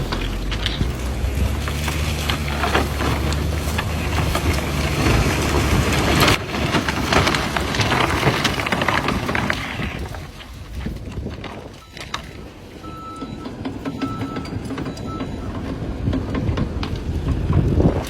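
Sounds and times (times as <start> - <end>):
vehicle engine running: 0.0 - 9.8
rushing crackling clatter: 0.0 - 18.0.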